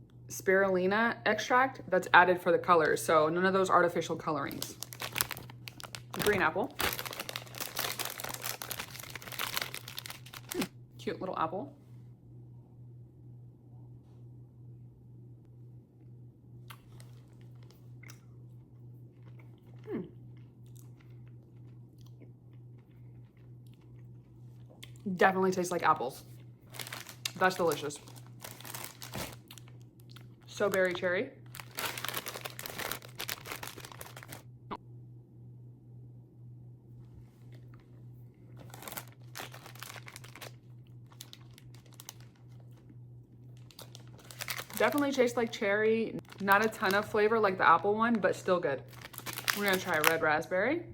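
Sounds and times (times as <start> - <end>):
person chewing gummy candy: 4.7 - 10.7, 16.6 - 25.1, 28.0 - 34.4, 38.6 - 42.9, 43.5 - 44.9, 48.9 - 50.1
wet mouth clicks: 18.0 - 18.3.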